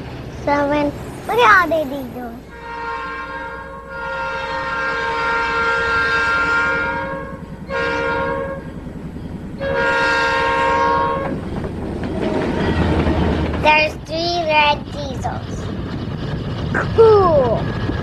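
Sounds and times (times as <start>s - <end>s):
train rumbling: 0.0s - 18.0s
locomotive air horn blasts: 2.5s - 8.8s, 9.6s - 11.4s.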